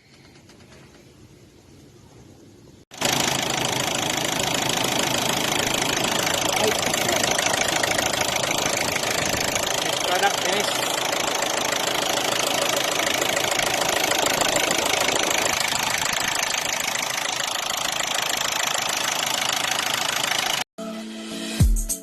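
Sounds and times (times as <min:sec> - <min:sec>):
diesel engine idling with knock: 0:03.0 - 0:20.6
music: 0:20.8 - 0:22.0.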